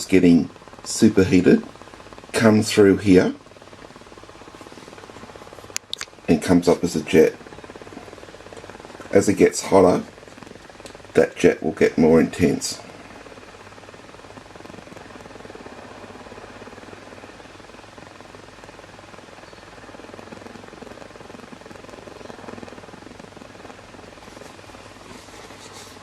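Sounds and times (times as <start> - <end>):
burner jet hissing: 0.0 - 26.0
faint clicks: 5.7 - 6.2.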